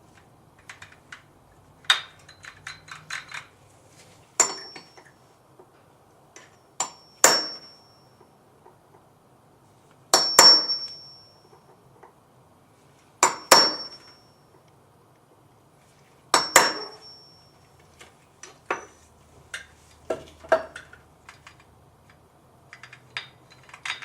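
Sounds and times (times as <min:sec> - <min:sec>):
small metal parts clicking: 0:00.2 - 0:03.6, 0:20.5 - 0:24.0
metal-on-metal strikes: 0:13.2 - 0:14.2.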